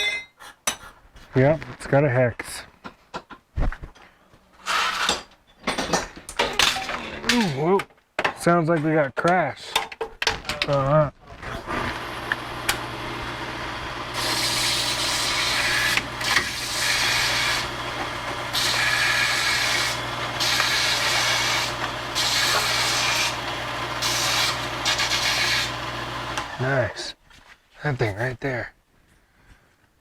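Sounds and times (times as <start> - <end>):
power tool humming: 11.4 - 27.1.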